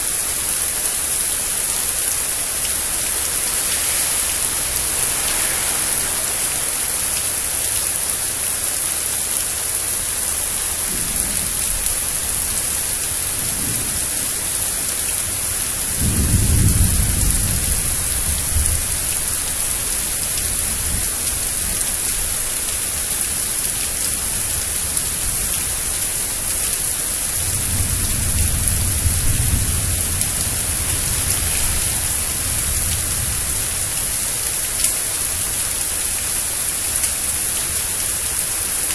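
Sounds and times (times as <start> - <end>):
steady rain hiss: 0.0 - 38.9
rolling thunder: 10.8 - 22.3, 27.3 - 34.5.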